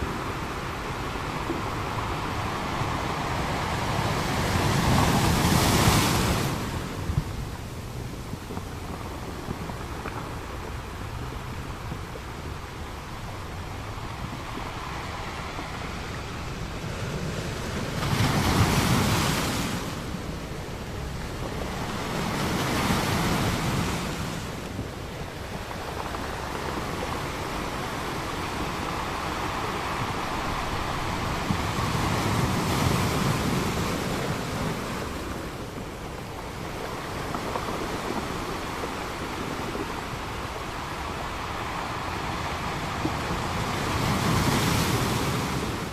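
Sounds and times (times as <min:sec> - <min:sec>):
ocean waves breaking on beach: 0:00.0 - 0:45.9.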